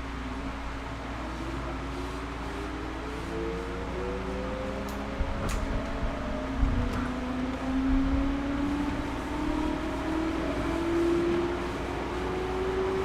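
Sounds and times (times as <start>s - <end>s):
train running gear rumble: 2.7s - 10.7s.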